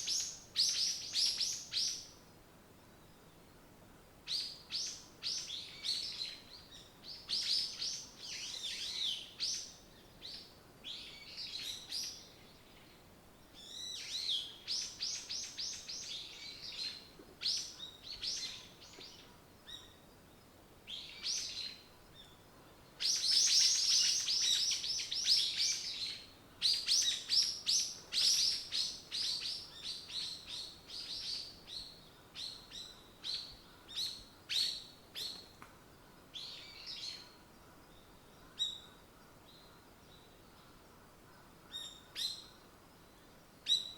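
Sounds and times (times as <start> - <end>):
songbirds chirping and trilling: 0.0 - 43.9.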